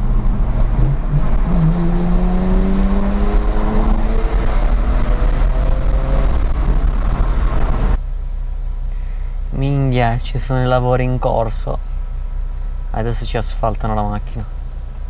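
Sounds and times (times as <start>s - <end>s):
car engine accelerating: 0.0s - 8.0s
tyre and road noise: 0.0s - 8.4s.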